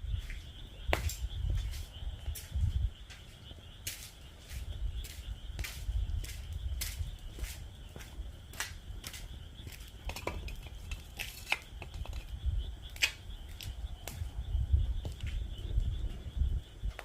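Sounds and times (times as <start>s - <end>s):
frogs calling: 0.0s - 17.0s
wood fire crackling: 3.5s - 16.4s.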